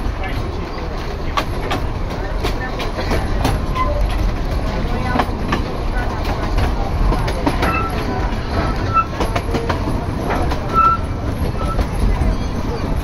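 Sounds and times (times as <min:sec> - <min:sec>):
train rumbling on rails: 0:00.0 - 0:13.0
wheels clattering: 0:00.0 - 0:13.0
wheel squeaks: 0:03.6 - 0:04.2, 0:07.4 - 0:13.0.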